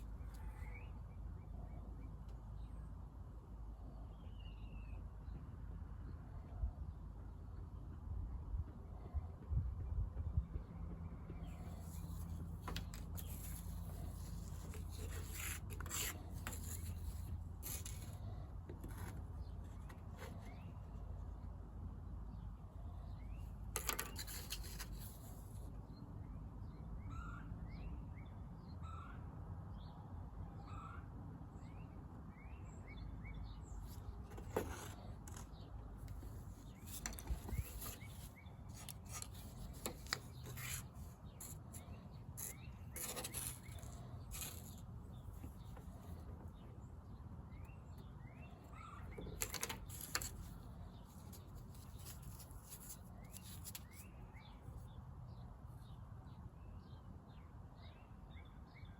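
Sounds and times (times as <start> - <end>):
small birds chirping: 10.3 - 21.6, 30.6 - 58.9.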